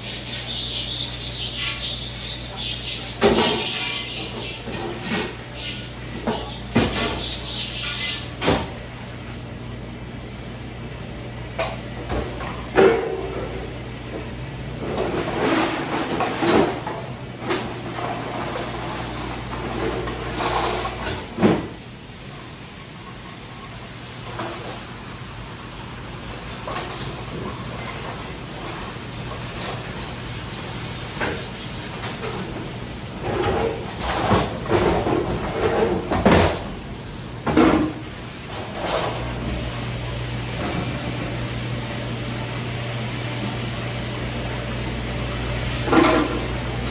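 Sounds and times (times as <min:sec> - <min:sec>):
dishes clattering: 0:02.4 - 0:08.7.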